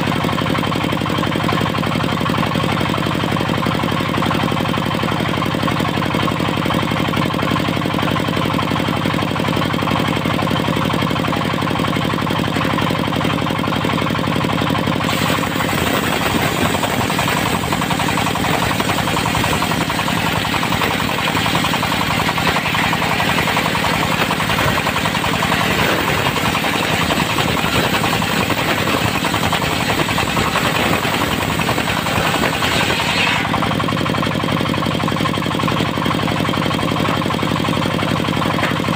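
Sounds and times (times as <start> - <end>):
diesel engine running: 0.0 - 38.9
saw blade cutting wood: 15.0 - 33.8.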